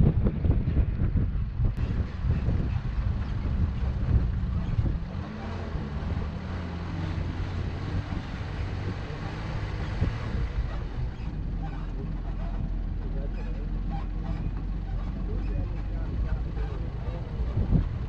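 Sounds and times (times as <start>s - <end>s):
wind rumble on microphone: 0.0s - 18.0s
vehicle engine running under load: 0.1s - 18.0s.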